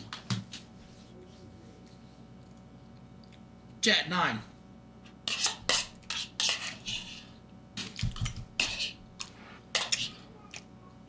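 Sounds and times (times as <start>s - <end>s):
spoon scraping cereal bowl: 5.2s - 8.0s, 8.6s - 10.2s.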